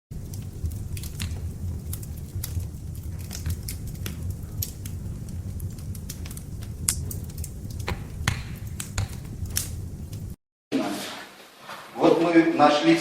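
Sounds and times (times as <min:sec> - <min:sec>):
steady low hum: 0:00.1 - 0:10.4.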